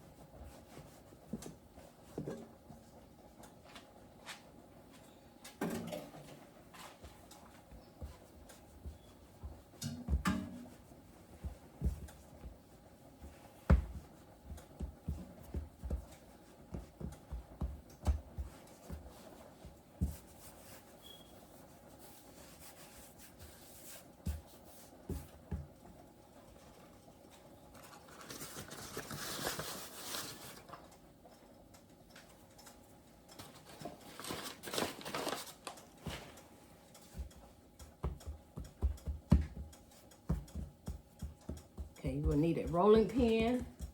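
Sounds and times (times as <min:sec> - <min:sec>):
dough thumping on counter: 0:13.6 - 0:20.3, 0:38.0 - 0:43.9.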